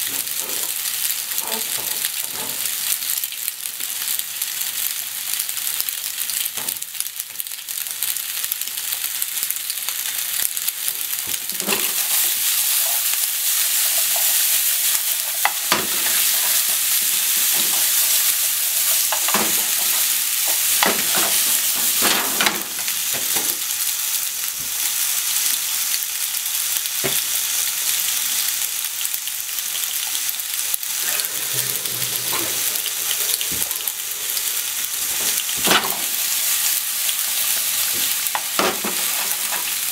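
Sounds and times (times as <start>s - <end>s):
food sizzling in a frying pan: 0.0s - 39.9s
chopsticks knocking and scraping pan: 13.7s - 22.7s.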